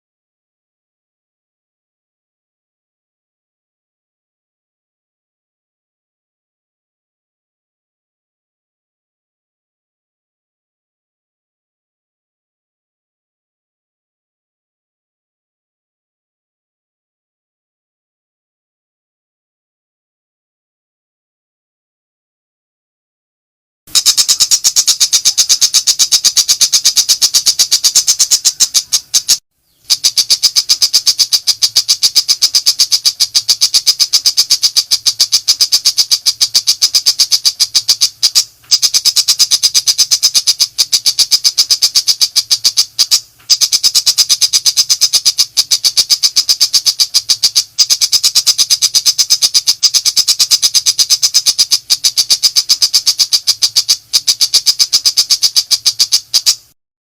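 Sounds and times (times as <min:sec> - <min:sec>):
shrike chattering call: 0:23.9 - 0:56.7.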